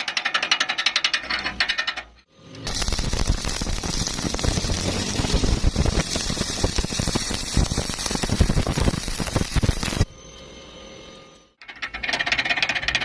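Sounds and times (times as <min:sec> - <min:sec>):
welding arc crackling and popping: 0:02.6 - 0:10.1.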